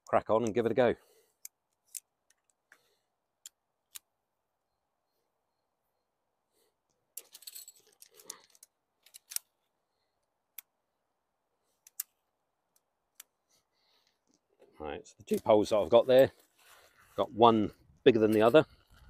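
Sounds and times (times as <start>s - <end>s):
tent poles and fabric rustling: 13.3s - 19.0s.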